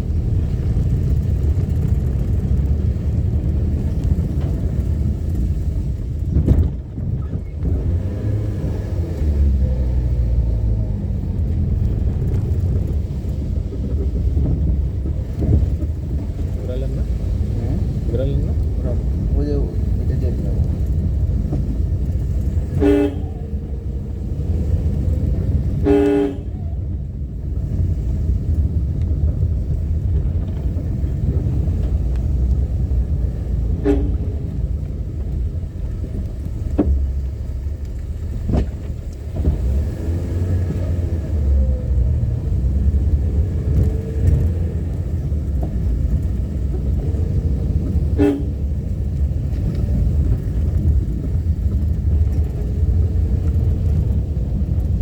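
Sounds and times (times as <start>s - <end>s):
car engine and road rumble: 0.0s - 55.0s
vehicle horn honking: 22.7s - 23.5s, 25.8s - 26.7s, 33.8s - 34.4s, 48.1s - 48.7s.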